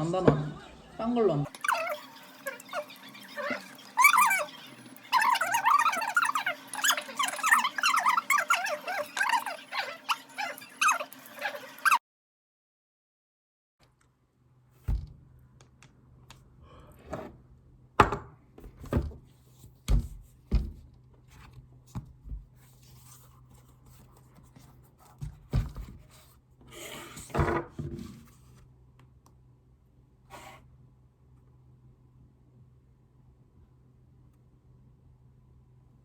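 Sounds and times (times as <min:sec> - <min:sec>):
objects knocking and tapping: 0:18.0 - 0:19.2.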